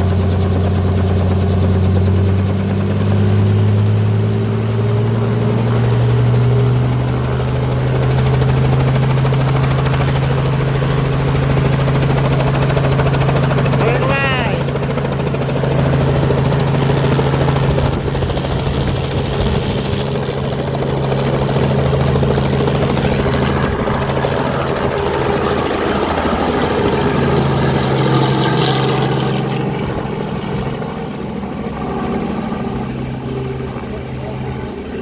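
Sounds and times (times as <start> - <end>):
helicopter engine and rotor drone: 0.0 - 35.0.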